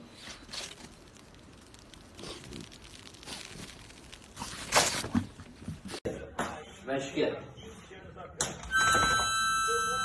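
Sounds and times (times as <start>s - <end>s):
rough tearing crinkling: 0.0s - 6.0s.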